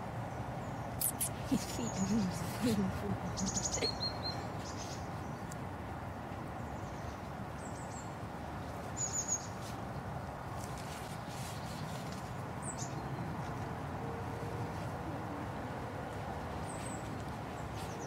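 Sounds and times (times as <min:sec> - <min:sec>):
steady outdoor rush: 0:00.0 - 0:18.0
small birds chirping: 0:00.6 - 0:05.6.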